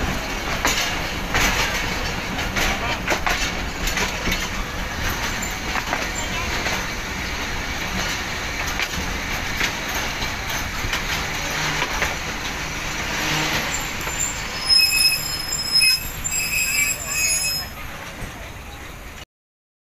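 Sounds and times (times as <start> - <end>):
train wheels rumbling on rails: 0.0 - 19.2
wheels and brakes squealing: 12.6 - 18.0.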